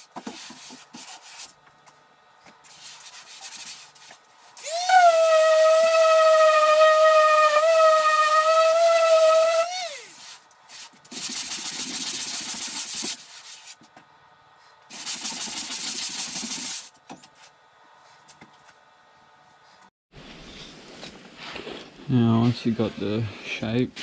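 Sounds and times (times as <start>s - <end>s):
motor whine winding down: 4.6s - 10.2s
sanding foam: 4.7s - 13.7s, 14.9s - 16.9s.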